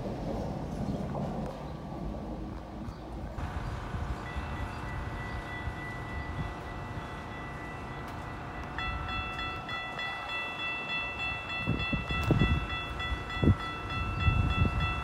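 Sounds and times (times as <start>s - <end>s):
train rumbling: 0.0s - 15.0s
steady high warning tone: 3.4s - 15.0s.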